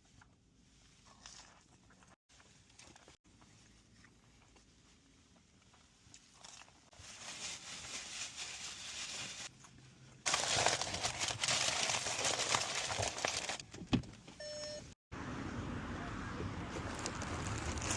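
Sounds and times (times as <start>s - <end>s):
crinkling and crackling eating: 0.9s - 7.0s, 16.7s - 17.9s.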